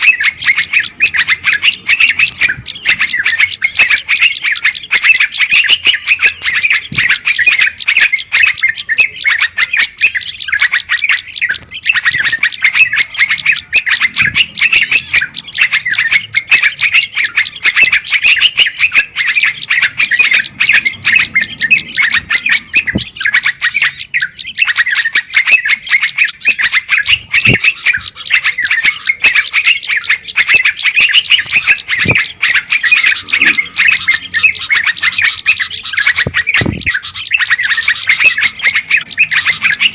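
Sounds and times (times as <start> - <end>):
songbirds chattering: 0.0 - 39.9.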